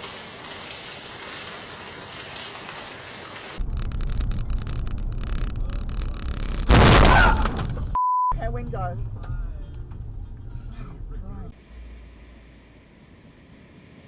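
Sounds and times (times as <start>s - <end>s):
steady rain: 0.0s - 14.0s
loud thunderclap: 3.6s - 12.5s
thunder rumbling and crackling: 3.6s - 13.0s.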